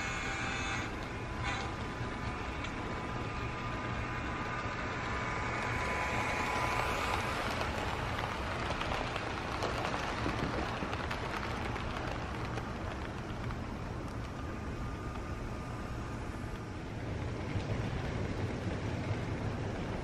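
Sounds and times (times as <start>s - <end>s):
model train wheels clicking: 0.0s - 20.0s
rain hiss: 1.9s - 20.0s.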